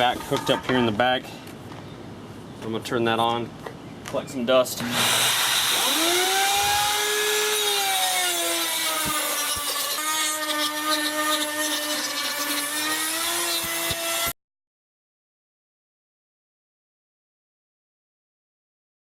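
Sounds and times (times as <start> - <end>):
shop vac running: 4.8 - 8.1
router motor whining: 4.8 - 14.3.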